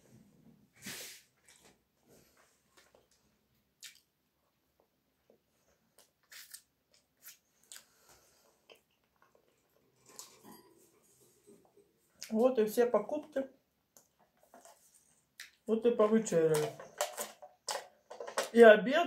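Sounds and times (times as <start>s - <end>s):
person chewing bread: 2.8s - 4.2s, 5.6s - 11.6s
mouth clicks and smacks: 3.8s - 4.1s.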